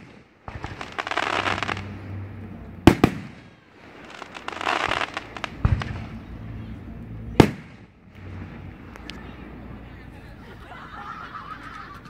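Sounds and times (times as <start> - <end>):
fireworks booms: 0.0 - 9.0
fireworks crackling: 0.0 - 12.0.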